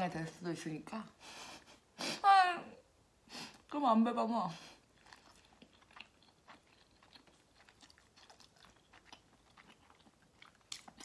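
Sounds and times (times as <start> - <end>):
person chewing food: 4.8 - 11.0.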